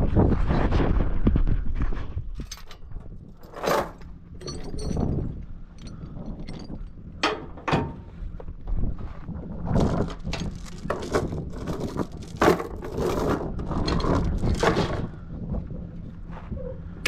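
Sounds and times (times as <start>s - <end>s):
metal clanks and rattles: 2.2s - 9.1s, 9.7s - 15.4s
low engine hum: 2.2s - 17.0s.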